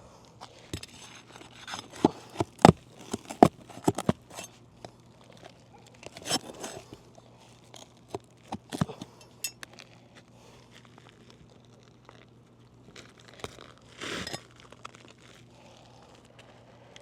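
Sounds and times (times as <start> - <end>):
pry bar knocking and scraping nails: 0.8 - 4.5.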